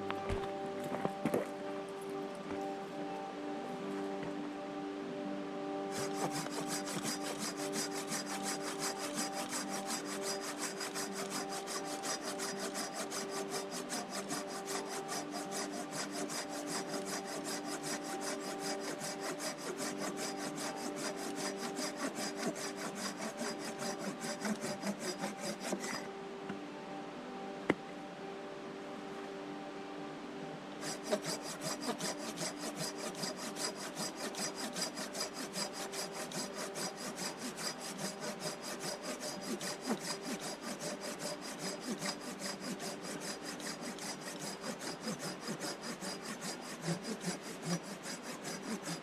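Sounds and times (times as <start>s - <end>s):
soft background music: 0.0s - 49.0s
handsaw cutting wood: 5.8s - 26.1s, 30.8s - 49.0s.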